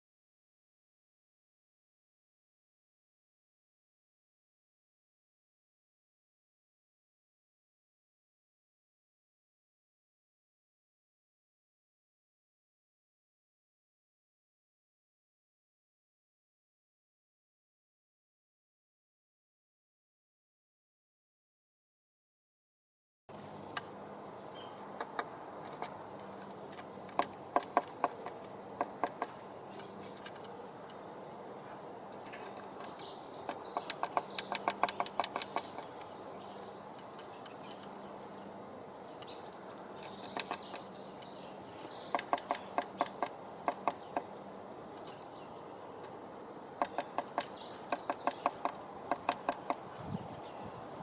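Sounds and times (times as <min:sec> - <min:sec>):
small birds twittering: 0:23.3 - 0:51.0.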